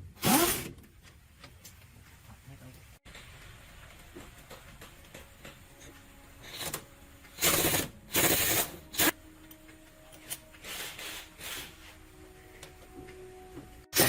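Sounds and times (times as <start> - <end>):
pneumatic impact wrench bursts: 0.2 - 0.7, 7.4 - 9.1, 10.6 - 11.7.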